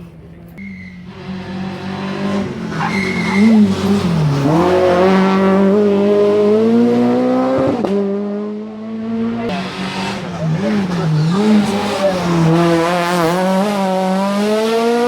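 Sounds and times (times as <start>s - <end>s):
rally car engine revving: 0.6s - 15.0s
tyres squealing: 2.5s - 5.0s, 9.5s - 13.1s.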